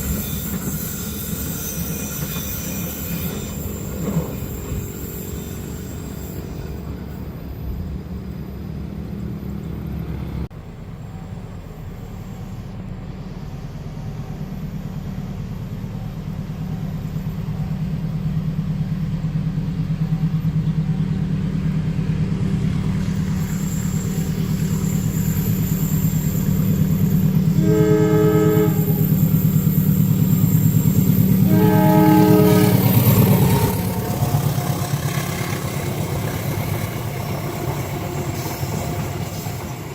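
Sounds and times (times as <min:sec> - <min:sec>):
train rumble: 0:00.0 - 0:39.9
train horn blasts: 0:27.5 - 0:29.3, 0:31.4 - 0:34.0.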